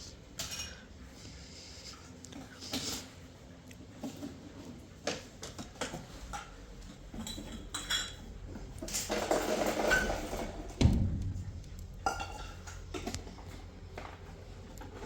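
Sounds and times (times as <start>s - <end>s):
dishes and cutlery clinking: 0.4s - 0.9s, 5.4s - 10.6s, 11.9s - 14.1s.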